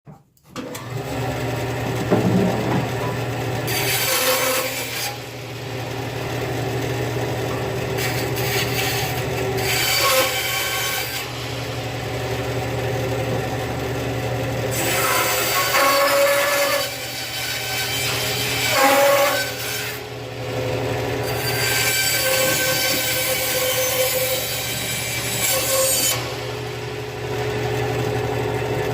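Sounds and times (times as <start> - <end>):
bandsaw motor hum: 0.6 - 28.9
saw blade rasping through wood: 2.1 - 5.6, 7.0 - 11.7, 14.7 - 20.1, 21.2 - 26.6.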